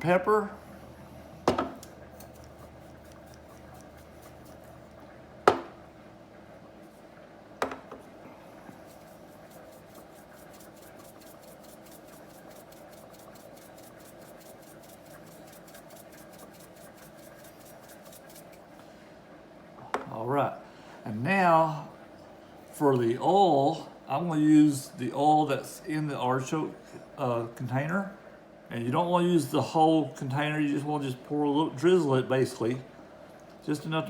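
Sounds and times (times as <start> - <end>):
sharp knocks: 5.5 - 5.8.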